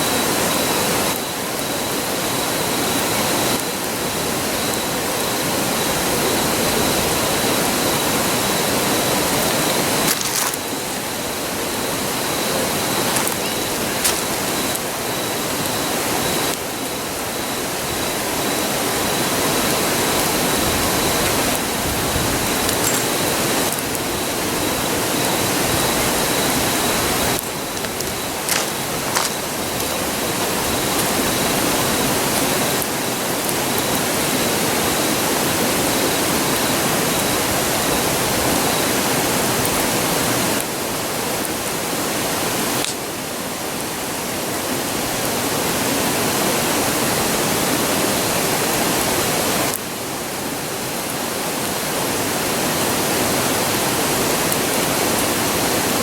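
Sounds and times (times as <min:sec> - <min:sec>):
campfire wood crackling: 0:00.3 - 0:46.2, 0:46.8 - 0:56.0
river rushing: 0:02.4 - 0:37.0.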